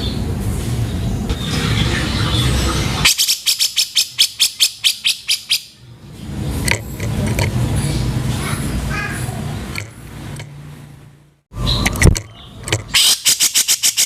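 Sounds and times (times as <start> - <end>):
bird harsh rattling call: 1.5 - 5.7, 11.7 - 14.0.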